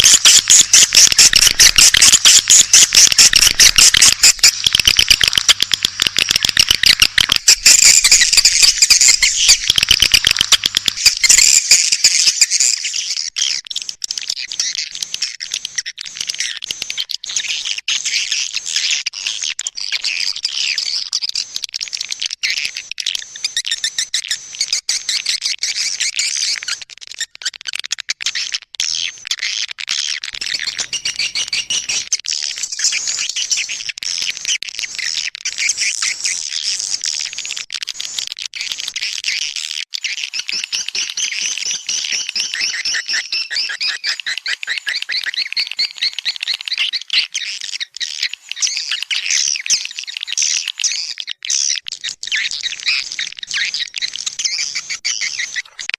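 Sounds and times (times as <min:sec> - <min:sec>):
high-pitched bird twittering: 0:00.0 - 0:05.6, 0:06.2 - 0:12.9, 0:30.4 - 0:32.1, 0:40.1 - 0:51.1, 0:52.3 - 0:55.9
fast bird trills: 0:00.0 - 0:12.4, 0:30.4 - 0:32.1.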